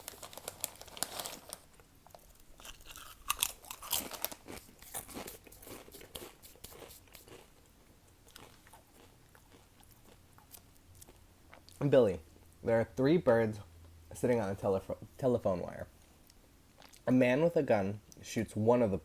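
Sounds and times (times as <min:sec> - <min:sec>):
chips being crunched: 0:02.6 - 0:07.4.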